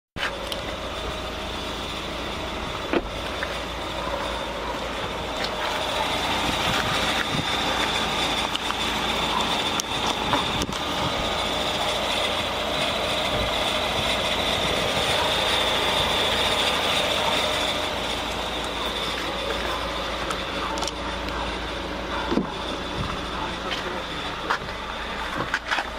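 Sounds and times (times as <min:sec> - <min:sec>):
car engine idling: 0:00.2 - 0:25.9.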